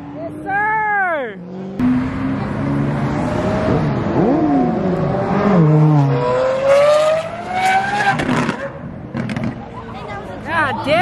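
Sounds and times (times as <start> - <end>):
vehicle engine passing: 1.3 - 9.6
engine revving up: 1.4 - 9.5.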